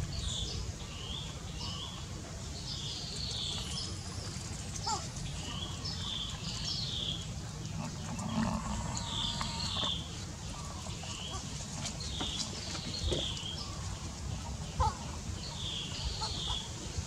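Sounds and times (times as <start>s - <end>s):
low animal sound: 7.6s - 11.5s.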